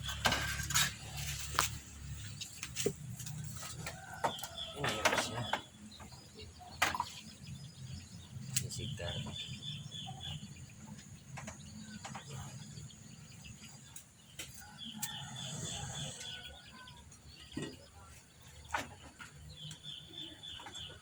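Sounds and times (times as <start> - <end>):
bird chirping trill: 4.0 - 21.0
sharp clicks and knocks: 11.0 - 12.4.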